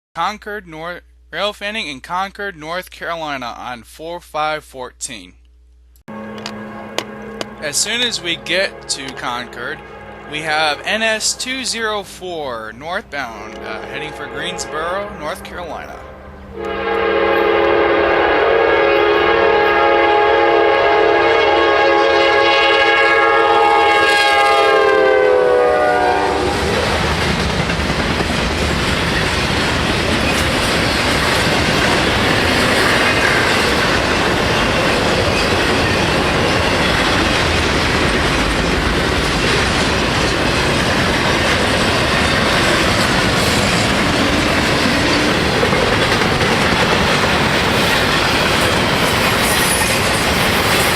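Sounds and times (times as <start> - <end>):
locomotive air horn: 6.1 - 12.5, 13.2 - 27.1
train cars rolling by: 6.1 - 19.9, 25.6 - 50.9.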